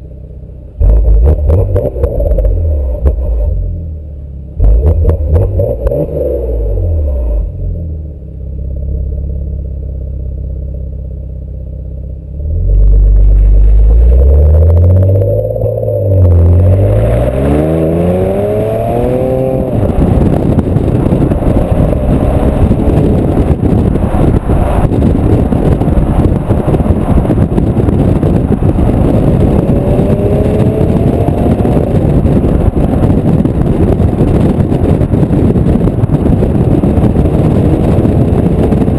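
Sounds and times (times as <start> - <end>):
car engine rumbling and accelerating: 0.0 - 38.9
loud rushing driving noise: 12.4 - 38.9.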